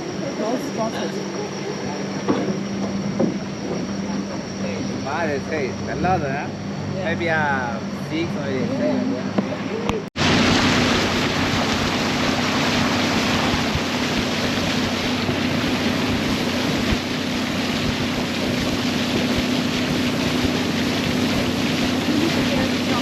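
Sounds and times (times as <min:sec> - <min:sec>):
boat motor humming: 0:00.0 - 0:23.0
rush of wind and water: 0:00.0 - 0:23.0.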